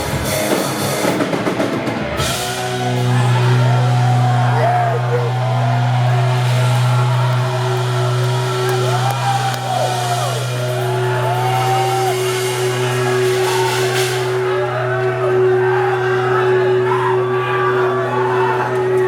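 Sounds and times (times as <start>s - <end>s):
live band music: 0.0s - 15.5s
cymbal wash: 2.2s - 17.4s
people shouting: 2.2s - 19.0s.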